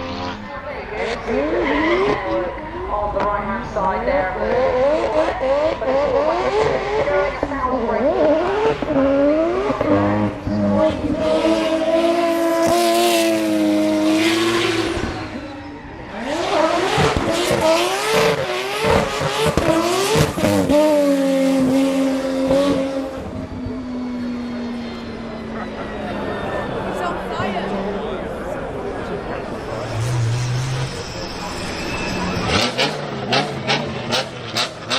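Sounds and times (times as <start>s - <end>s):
car engine revving hard: 4.4s - 7.2s, 7.8s - 15.5s, 16.1s - 27.1s, 29.0s - 34.9s.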